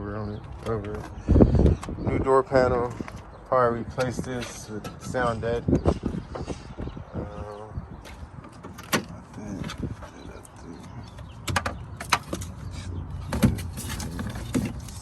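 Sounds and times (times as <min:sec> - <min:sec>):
car door clicks and knocks: 0:11.4 - 0:12.5.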